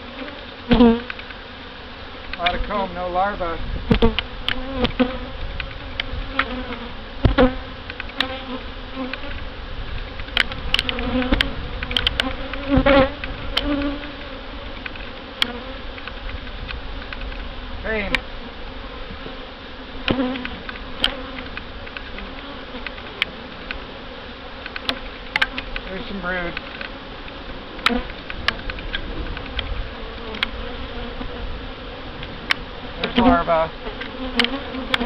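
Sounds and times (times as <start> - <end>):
honey bees buzzing: 0.0 - 35.0
sharp clicks and knocks: 9.1 - 17.5, 24.6 - 25.9, 26.5 - 30.6, 34.0 - 35.0.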